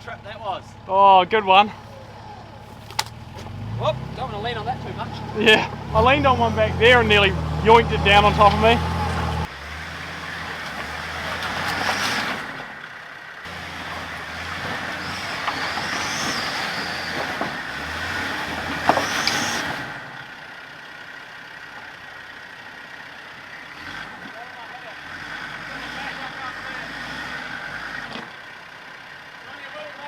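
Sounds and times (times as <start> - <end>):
vehicle engine revving: 0.0 - 21.9, 23.1 - 29.3
tyres scrabbling on rocks: 2.6 - 3.6, 14.6 - 19.7
squeal: 15.0 - 17.4, 19.0 - 19.7.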